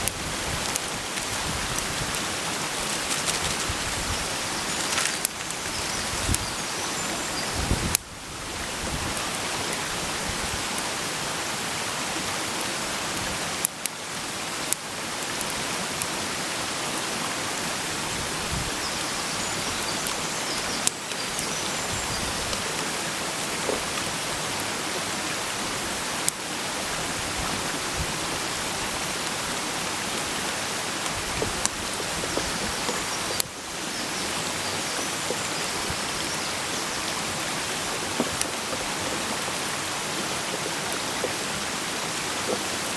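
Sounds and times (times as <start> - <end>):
campfire pops: 4.7 - 5.7, 37.9 - 39.2.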